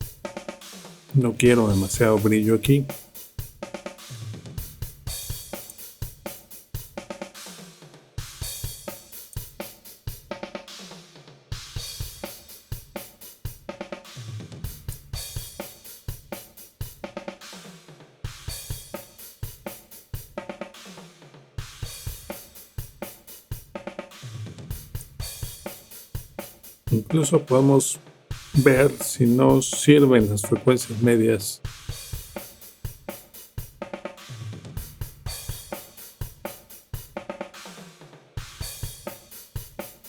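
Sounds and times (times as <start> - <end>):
drum kit beat: 0.0 - 40.0.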